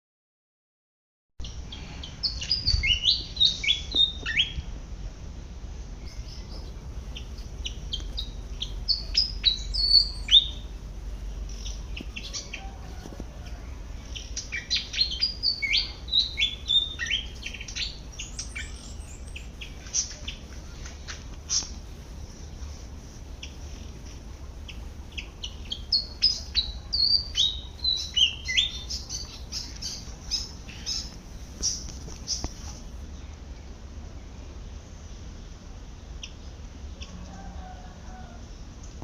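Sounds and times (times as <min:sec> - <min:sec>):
bird chips: 0:11.4 - 0:21.9.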